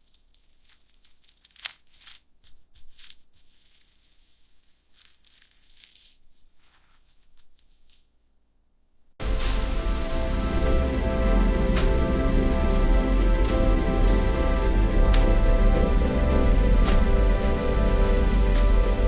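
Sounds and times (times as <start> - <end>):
crinkling and rustling: 0.0 - 8.4
music: 9.2 - 19.0.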